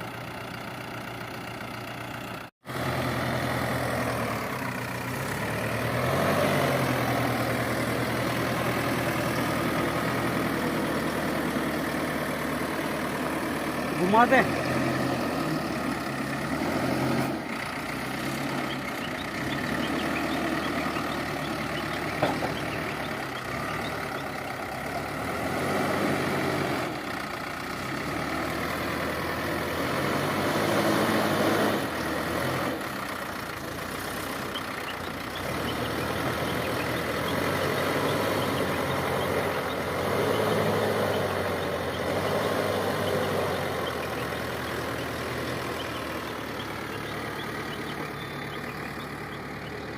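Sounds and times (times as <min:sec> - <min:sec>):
heavy diesel engine revving: 0:00.0 - 0:49.9.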